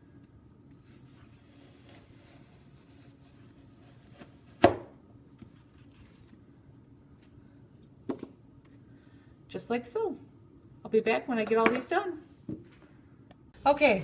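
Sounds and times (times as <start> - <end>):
knife chopping apple on board: 4.6 - 4.9.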